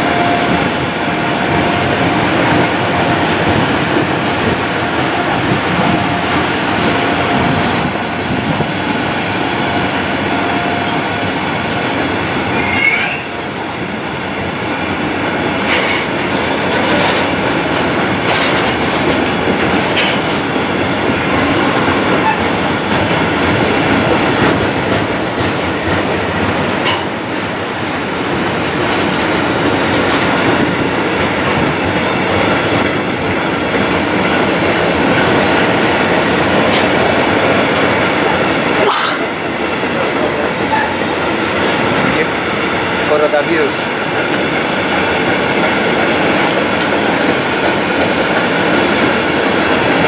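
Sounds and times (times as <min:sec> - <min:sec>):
freight wagons rumbling: 0:00.0 - 0:14.1, 0:14.7 - 0:50.0
wheel squeal: 0:12.6 - 0:13.4.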